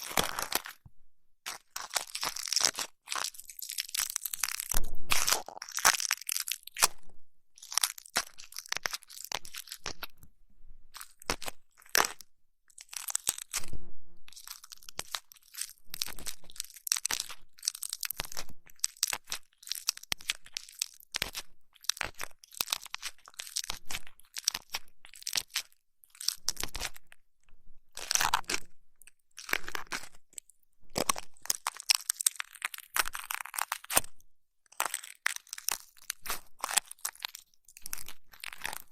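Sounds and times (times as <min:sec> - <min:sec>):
crackling rubbing and scratching: 0:00.0 - 0:38.9.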